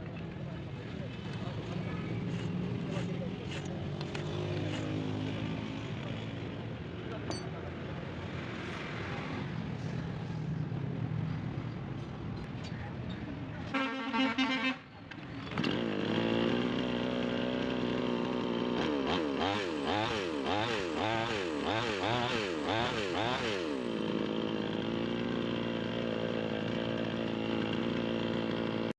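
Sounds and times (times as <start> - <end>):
chainsaw engine revving and idling: 1.3 - 7.4, 15.2 - 28.9.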